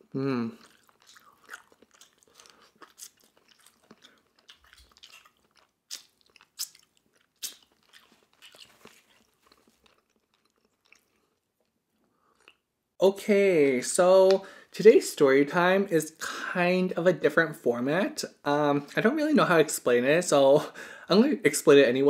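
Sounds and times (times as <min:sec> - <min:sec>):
chewing and wet mouth sounds: 0:00.4 - 0:12.7
sharp mouth clicks and smacks: 0:00.6 - 0:09.0.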